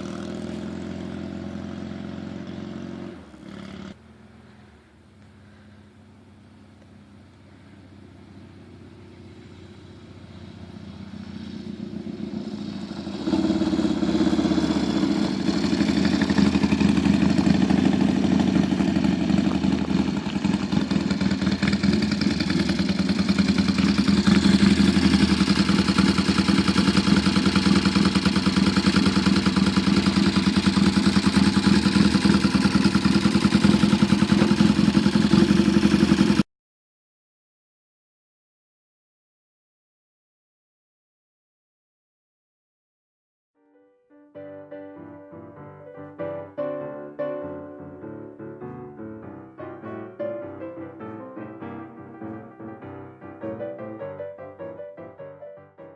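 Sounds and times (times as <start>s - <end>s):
motorcycle engine running: 0.0s - 36.4s.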